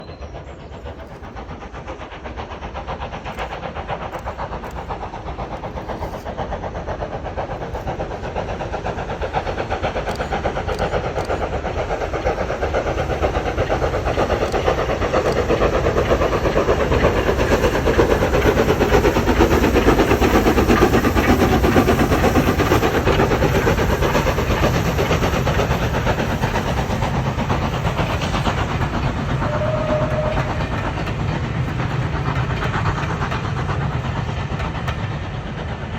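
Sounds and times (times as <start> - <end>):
train running along line: 0.0 - 35.9.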